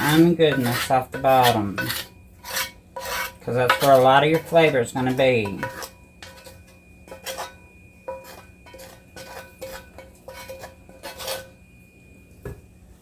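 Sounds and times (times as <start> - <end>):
utensil scraping metal pan: 0.0 - 11.6.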